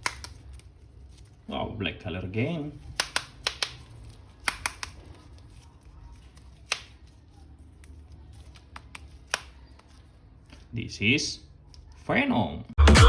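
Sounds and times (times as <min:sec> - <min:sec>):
hard plastic clicks and taps: 0:02.9 - 0:03.8, 0:04.4 - 0:05.0.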